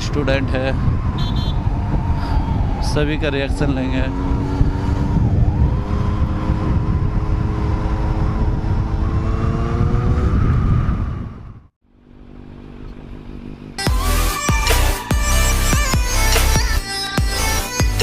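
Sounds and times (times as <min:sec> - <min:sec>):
wind rumble on microphone: 0:00.0 - 0:11.7
motorcycle engine cruising: 0:00.0 - 0:14.0
music: 0:13.8 - 0:18.0.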